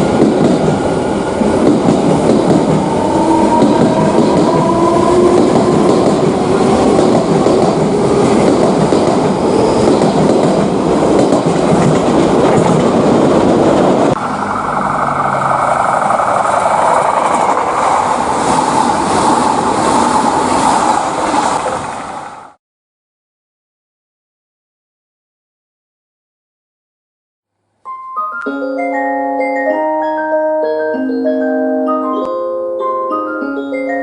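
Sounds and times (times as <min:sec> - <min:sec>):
electric train on rails: 0:00.0 - 0:22.6
train motor whining: 0:12.8 - 0:21.8.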